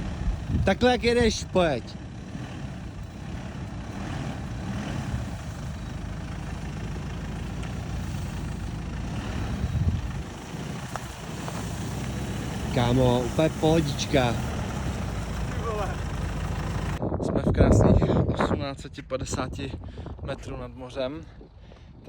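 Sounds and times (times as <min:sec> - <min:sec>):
suv engine rumbling at low revs: 0:00.0 - 0:17.0.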